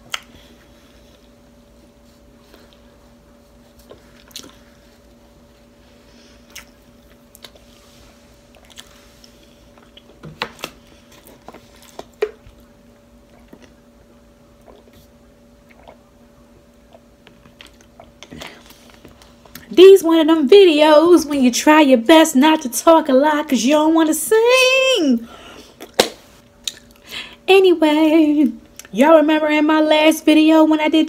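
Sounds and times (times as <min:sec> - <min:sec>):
wet chewing: 0:03.8 - 0:04.7, 0:06.4 - 0:12.7, 0:14.6 - 0:16.1, 0:16.8 - 0:19.7, 0:26.6 - 0:27.0.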